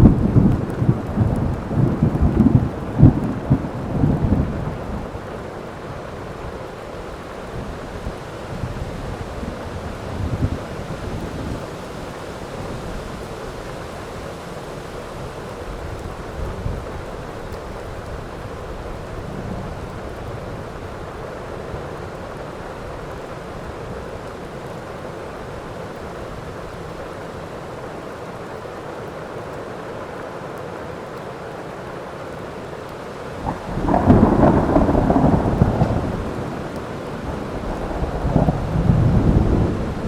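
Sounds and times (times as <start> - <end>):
low thunder rumble: 0.0 - 5.2, 33.4 - 40.0
heavy rain falling: 0.0 - 40.0
loud thunderclap: 33.4 - 40.0.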